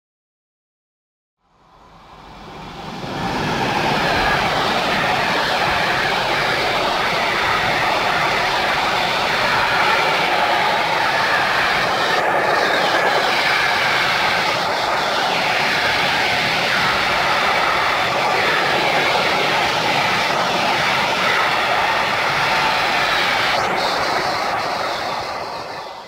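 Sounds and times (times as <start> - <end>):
freight train rolling rumble: 1.6 - 26.0.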